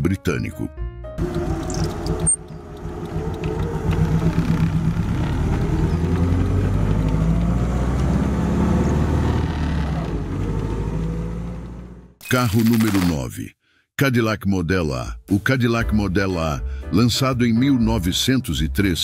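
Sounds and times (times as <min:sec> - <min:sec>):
car engine running: 0:01.2 - 0:12.2.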